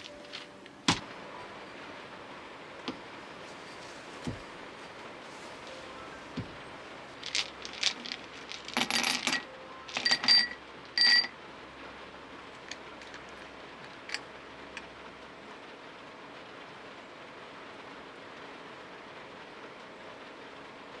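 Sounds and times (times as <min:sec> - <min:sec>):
small hard objects clinking: 0:00.0 - 0:01.0, 0:02.9 - 0:11.4, 0:12.4 - 0:15.0
rain hiss: 0:00.0 - 0:21.0.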